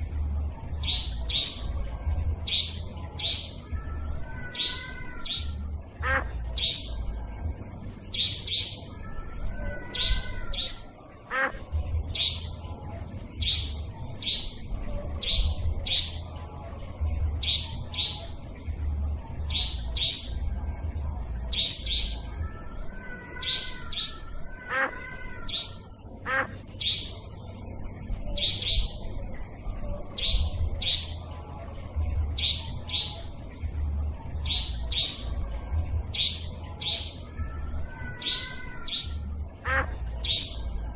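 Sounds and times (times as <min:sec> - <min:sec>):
faint low hum: 0:00.0 - 0:40.9
birds warbling: 0:00.6 - 0:40.9
nightjar sharp high calls: 0:00.8 - 0:01.8, 0:02.4 - 0:07.1, 0:08.1 - 0:12.6, 0:13.4 - 0:16.3, 0:17.4 - 0:18.4, 0:21.5 - 0:27.3, 0:28.4 - 0:29.1, 0:30.2 - 0:31.2, 0:32.4 - 0:33.4, 0:34.4 - 0:35.4, 0:36.1 - 0:40.7.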